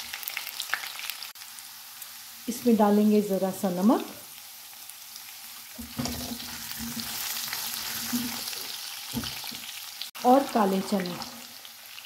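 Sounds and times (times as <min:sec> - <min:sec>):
potatoes sizzling in oil: 0:00.0 - 0:12.0
spatula scraping pan: 0:05.8 - 0:08.7.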